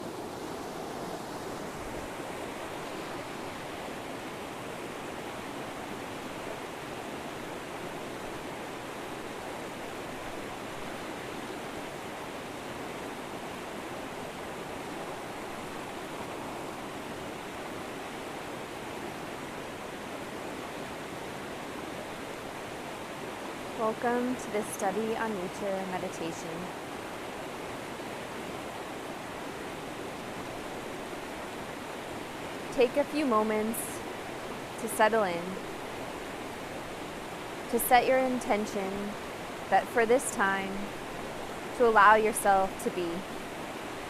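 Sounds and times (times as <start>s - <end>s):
river water rushing over rocks: 0.0s - 44.0s.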